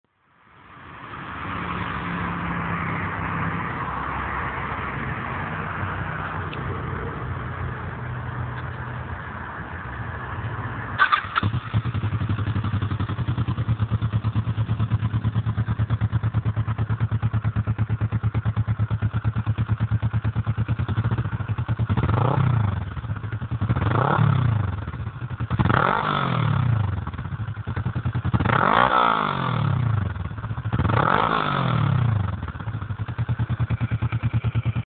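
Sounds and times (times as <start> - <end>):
motorcycle engine idling: 11.0 - 28.9, 29.7 - 34.9.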